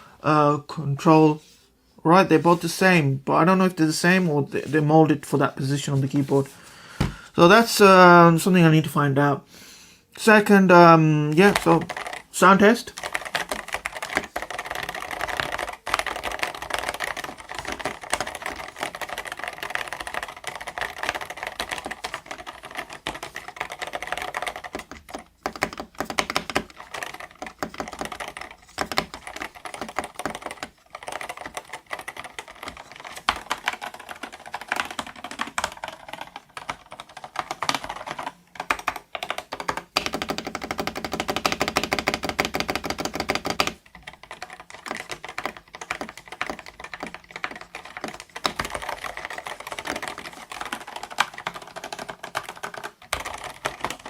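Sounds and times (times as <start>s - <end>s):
muted keyboard keystroke clacks: 11.3s - 54.0s.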